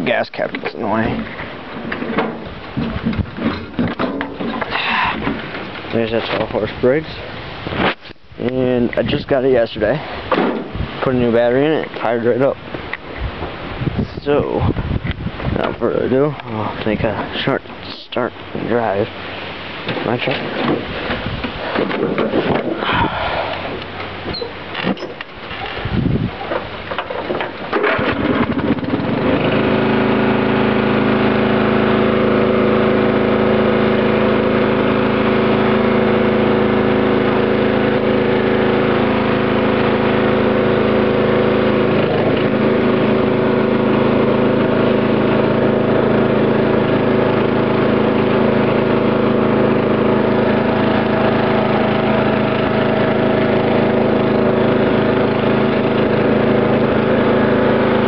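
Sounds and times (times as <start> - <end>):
riding tractor engine starting: 19.9 - 58.0.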